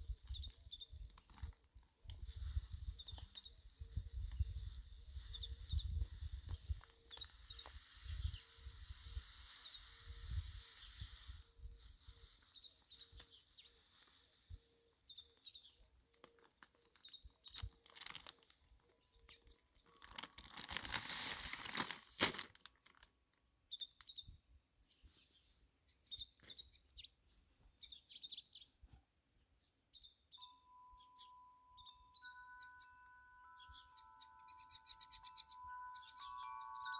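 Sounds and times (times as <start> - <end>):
small birds chirping: 0.0 - 20.7, 23.5 - 36.9
birdseed crinkling and rustling: 0.0 - 24.3.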